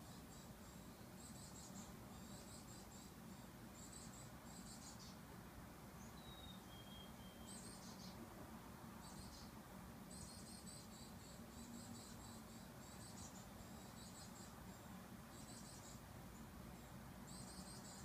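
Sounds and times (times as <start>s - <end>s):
soft two-note whistle: 6.3s - 7.5s.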